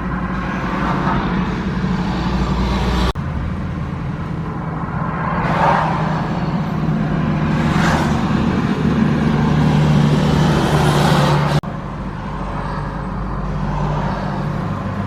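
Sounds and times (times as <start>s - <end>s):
engine hum: 0.0s - 15.0s
truck engine running: 0.0s - 15.0s.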